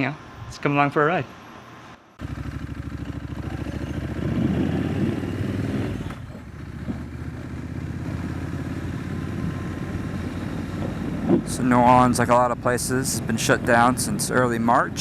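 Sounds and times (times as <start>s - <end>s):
motorcycle engine under throttle: 2.2s - 11.5s.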